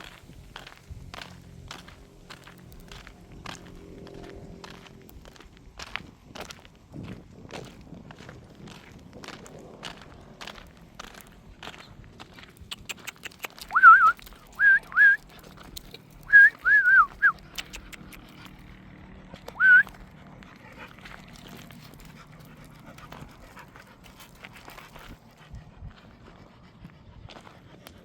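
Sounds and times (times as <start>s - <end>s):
dog whining: 13.6s - 15.2s, 16.3s - 17.9s, 19.6s - 20.0s.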